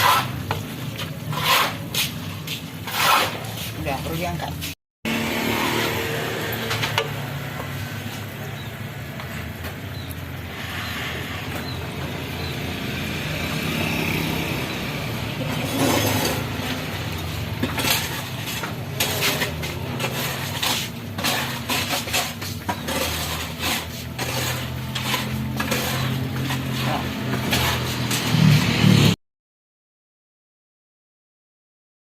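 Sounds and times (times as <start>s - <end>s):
utensils clinking on dishes: 15.4s - 28.4s.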